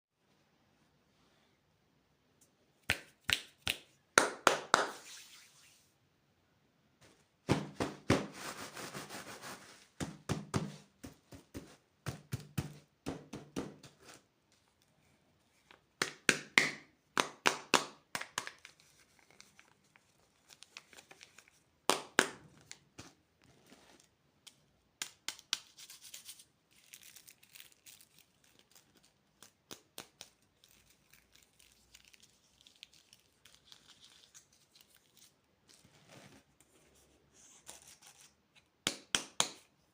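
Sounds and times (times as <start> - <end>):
plastic wrappers crinkling: 26.7 - 35.4.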